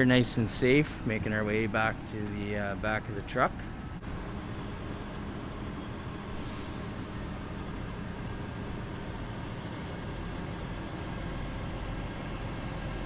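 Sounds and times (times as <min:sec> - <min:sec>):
low vehicle rumble: 0:00.0 - 0:13.0
brief hiss: 0:06.3 - 0:07.4.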